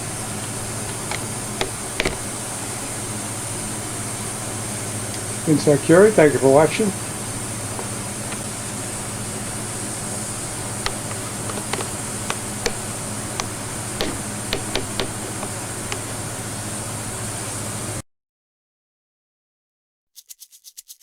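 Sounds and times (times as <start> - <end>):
background hum and hiss: 0.0 - 18.0
light clicks and knocks: 0.8 - 2.4, 10.8 - 16.2.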